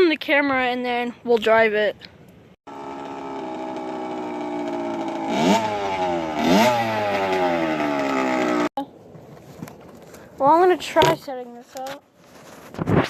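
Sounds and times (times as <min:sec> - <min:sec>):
dirt bike engine revving: 0:02.7 - 0:08.7.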